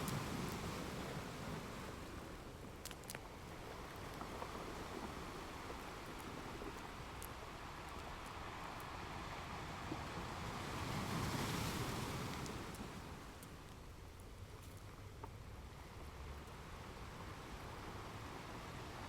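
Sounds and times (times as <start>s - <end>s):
ocean wave surf: 9.0s - 13.2s.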